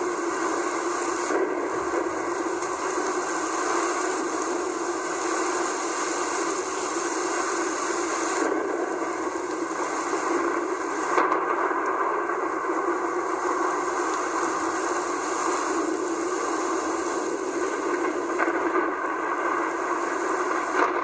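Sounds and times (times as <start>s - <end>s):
heavy rain pouring: 0.0s - 21.0s
sharp crack: 8.1s - 19.5s, 20.5s - 21.0s.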